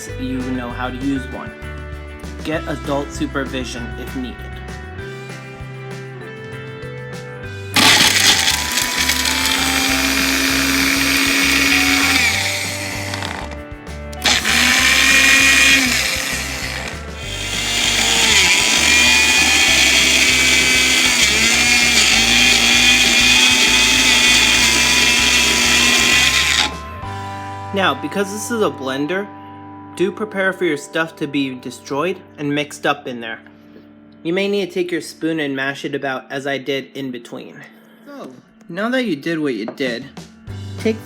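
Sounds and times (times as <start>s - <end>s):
blender motor running: 7.7s - 13.6s, 14.2s - 27.0s.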